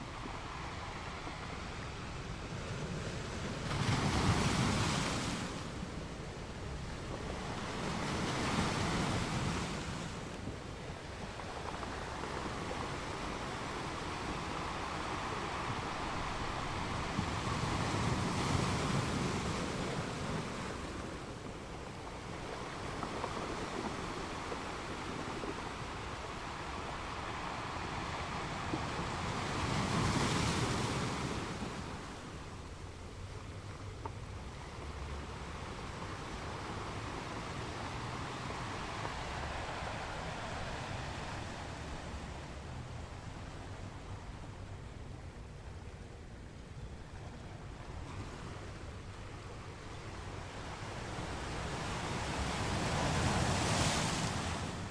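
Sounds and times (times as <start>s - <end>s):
waves breaking on rocks: 2.7s - 33.7s, 50.2s - 54.9s.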